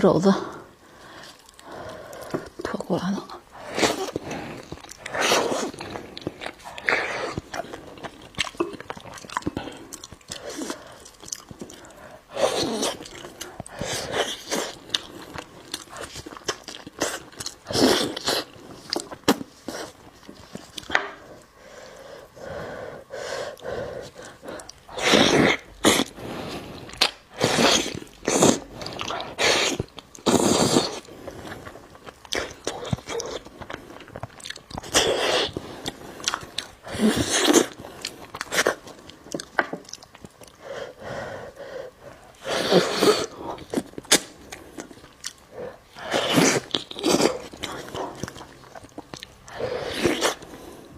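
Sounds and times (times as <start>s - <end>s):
chewing and biting meat: 3.9s - 12.0s, 12.6s - 19.6s, 31.6s - 40.6s, 46.3s - 50.4s.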